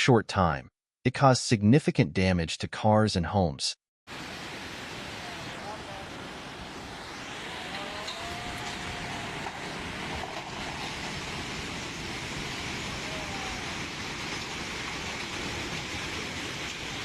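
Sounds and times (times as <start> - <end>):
hailstones pelting down: 8.0 - 17.0
hailstones clicking on hard surfaces: 13.8 - 17.0.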